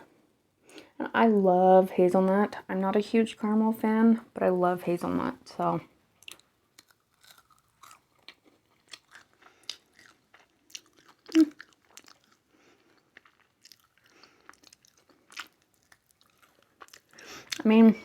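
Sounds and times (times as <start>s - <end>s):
chewing and crunching chocolate: 6.2s - 17.8s.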